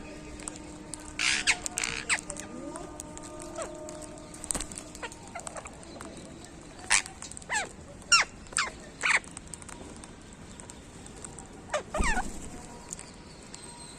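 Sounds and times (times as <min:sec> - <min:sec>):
parakeet calls: 0:01.0 - 0:02.4, 0:03.4 - 0:06.0, 0:06.8 - 0:09.3, 0:11.7 - 0:12.5.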